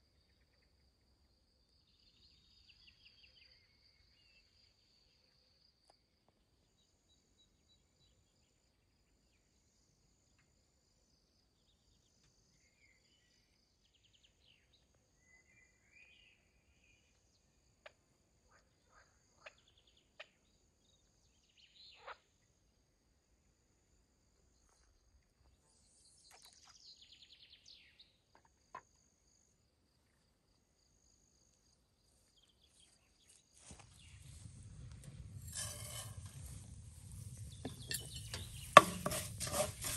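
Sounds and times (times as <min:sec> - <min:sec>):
faint insect trill: 0:25.7 - 0:39.9.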